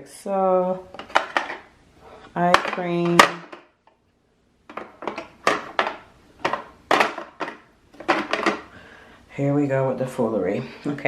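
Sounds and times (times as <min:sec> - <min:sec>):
small bottles and jars clacking: 0:04.7 - 0:08.7.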